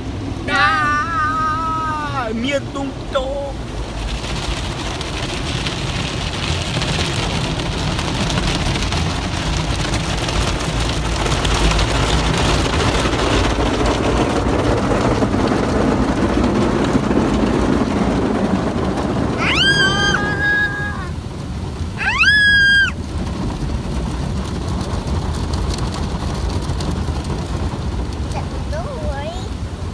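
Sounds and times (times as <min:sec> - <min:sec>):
car wash water spraying: 0:00.0 - 0:29.9
child squealing: 0:00.5 - 0:02.3, 0:19.4 - 0:21.2, 0:22.0 - 0:23.0.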